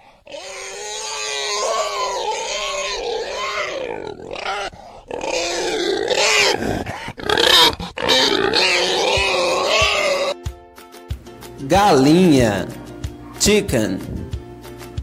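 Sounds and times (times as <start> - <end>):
pig squealing: 0.0 - 10.4.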